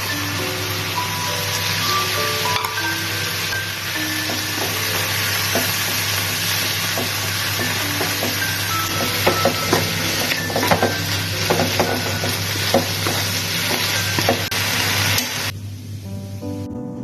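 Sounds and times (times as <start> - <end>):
food sizzling in a hot pan: 0.0 - 15.5
soft guitar music: 16.0 - 17.0.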